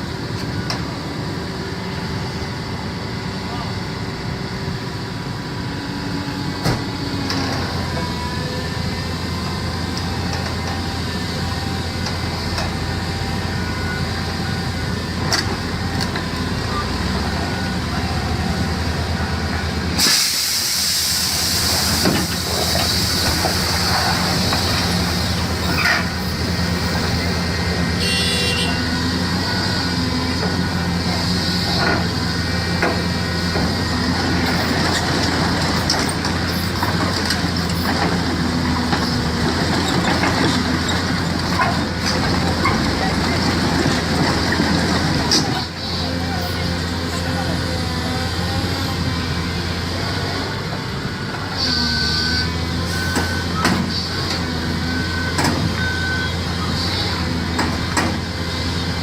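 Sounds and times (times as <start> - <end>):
large engine running: 0.0 - 59.0
loud hiss: 20.0 - 25.3.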